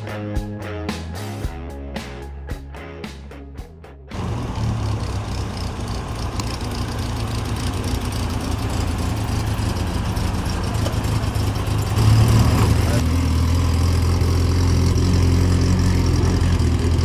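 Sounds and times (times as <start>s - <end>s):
music: 0.0s - 4.2s
car engine idling: 4.1s - 17.0s
outdoor background noise: 4.1s - 17.0s.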